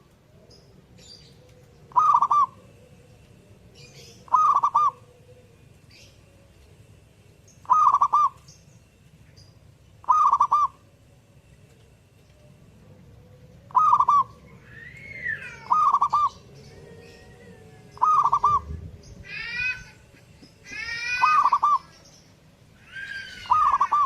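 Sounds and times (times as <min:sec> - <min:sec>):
dove cooing: 0:00.0 - 0:06.8, 0:07.6 - 0:08.4, 0:10.0 - 0:11.0, 0:12.5 - 0:22.0, 0:22.9 - 0:24.0
downward-sliding bird calls: 0:13.7 - 0:22.0, 0:22.9 - 0:24.0.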